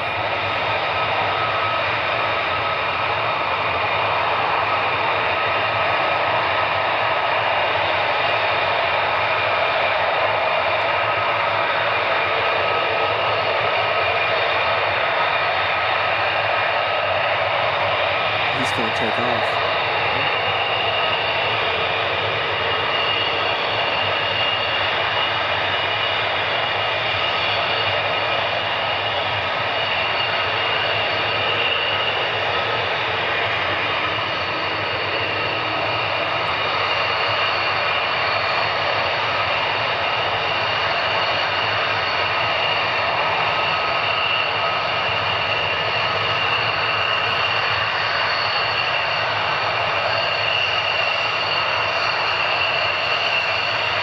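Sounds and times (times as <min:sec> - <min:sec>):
fighter jet engine roaring: 0:00.0 - 0:54.0.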